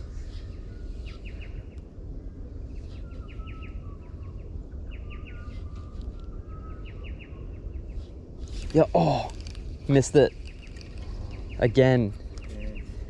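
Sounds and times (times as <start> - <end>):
low outdoor rumble: 0.0 - 13.0
birds chirping: 2.6 - 13.0.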